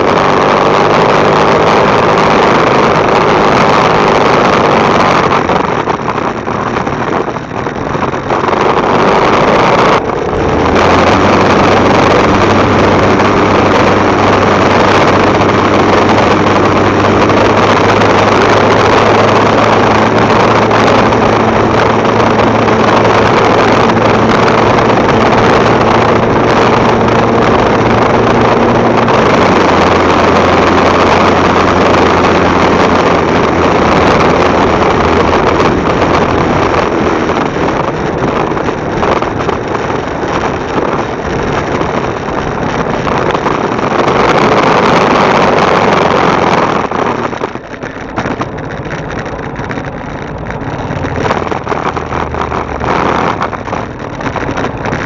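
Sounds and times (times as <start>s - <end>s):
motorcycle engine running: 0.0s - 55.0s
wind rush on microphone: 0.0s - 55.0s.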